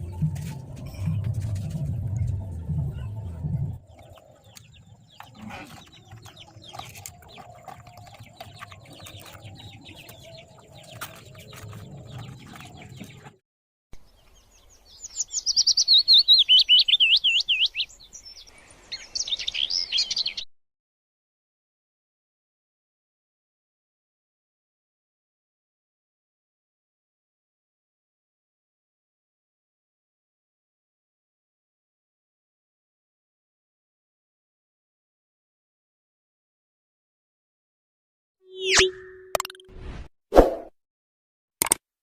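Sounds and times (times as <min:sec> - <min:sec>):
low rumble: 0:00.0 - 0:05.2
songbird warbling trill: 0:38.5 - 0:39.6
scattered clicks: 0:41.6 - 0:41.8.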